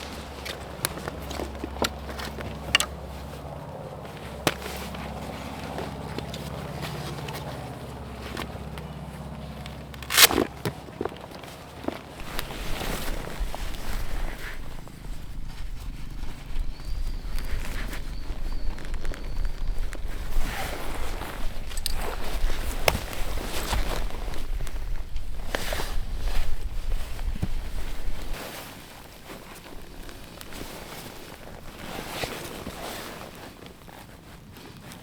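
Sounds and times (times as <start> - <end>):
low steady rumble: 0.0 - 17.4
rough rustling noise: 0.0 - 35.0.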